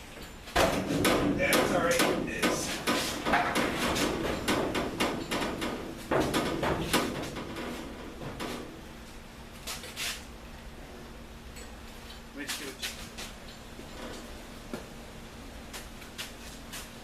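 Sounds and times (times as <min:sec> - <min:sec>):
rolling hoist clunking and rattling: 0:00.0 - 0:08.8.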